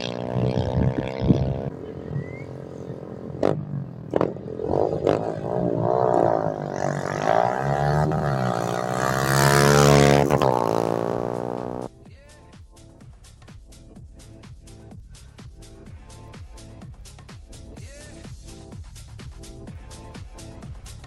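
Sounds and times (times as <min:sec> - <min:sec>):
motorcycle engine at high revs: 0:00.0 - 0:11.9.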